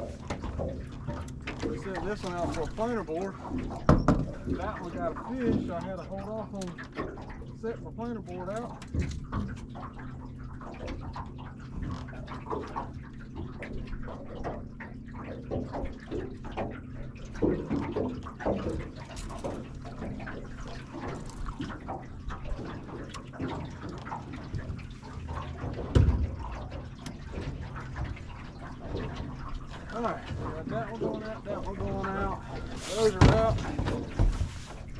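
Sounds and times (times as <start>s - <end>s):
water lapping against boat hull: 0.0s - 34.9s
hard thump: 33.1s - 34.5s.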